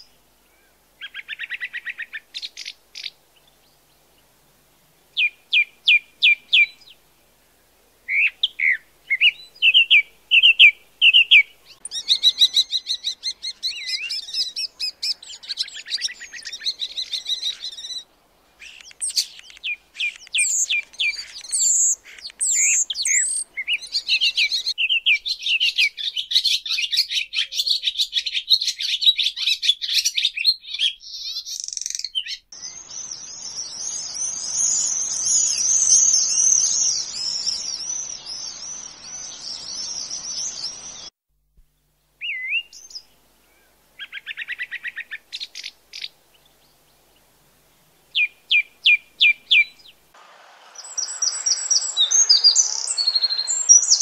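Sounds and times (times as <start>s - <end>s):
skylark song: 8.1s - 18.0s, 18.6s - 27.5s, 50.6s - 54.0s
high twittering: 18.6s - 24.8s, 50.2s - 54.0s
starling song: 50.1s - 54.0s.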